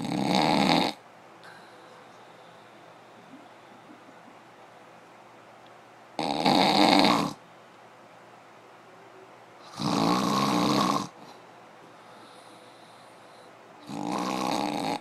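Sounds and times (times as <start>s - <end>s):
loud rattling snores: 0.0s - 1.0s, 6.2s - 7.4s, 9.7s - 11.2s, 13.8s - 15.0s.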